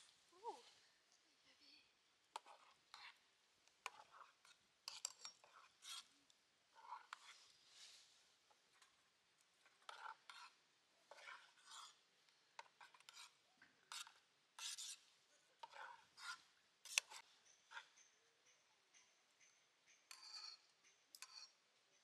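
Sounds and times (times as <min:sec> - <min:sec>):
utensils scraping in a pot: 0:03.8 - 0:06.1, 0:06.8 - 0:07.5, 0:09.8 - 0:12.0, 0:12.7 - 0:15.0, 0:15.6 - 0:17.9.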